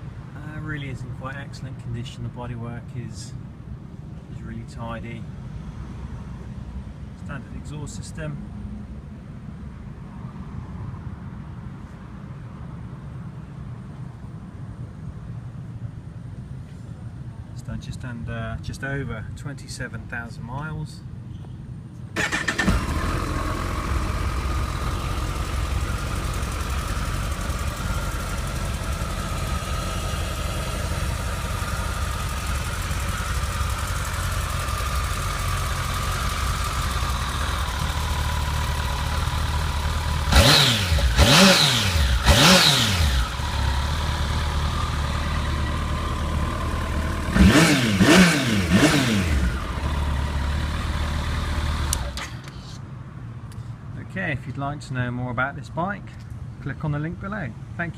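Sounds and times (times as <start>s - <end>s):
motorcycle engine idling and revving: 22.2s - 52.8s.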